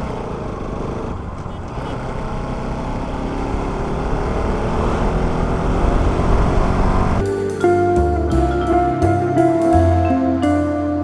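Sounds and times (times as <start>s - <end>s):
motorcycle engine running: 0.0s - 7.3s
background music: 4.5s - 11.0s.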